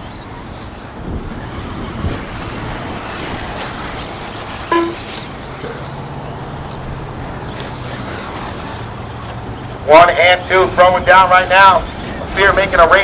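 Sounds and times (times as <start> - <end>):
rc cars rushing: 0.0 - 13.0
low steady hum: 4.7 - 5.2.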